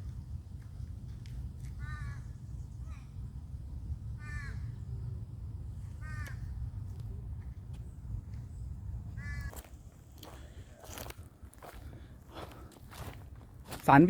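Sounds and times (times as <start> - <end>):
low wind rumble: 0.0 - 14.0
peafowl calls: 9.2 - 9.6.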